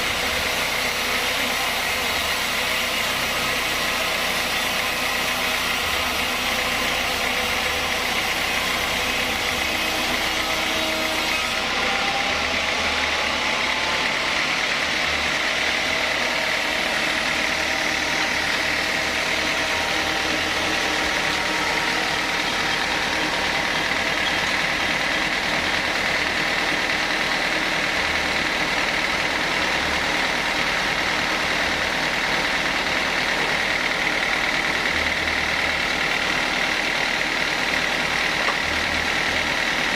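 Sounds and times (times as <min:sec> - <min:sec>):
sawmill saw running: 0:00.0 - 0:39.9.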